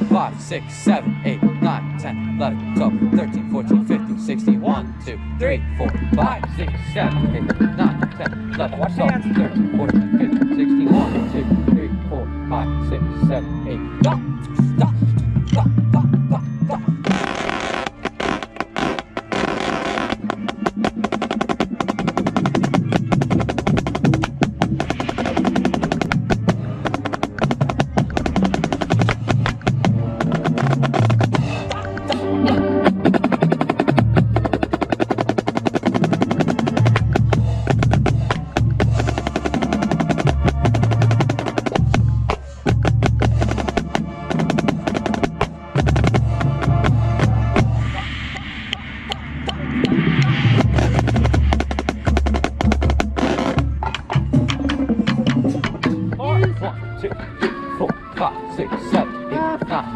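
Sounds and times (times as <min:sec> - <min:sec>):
marching band playing: 0:00.0 - 0:59.9
marching snare drum rolls: 0:17.1 - 0:31.6, 0:32.9 - 0:56.6.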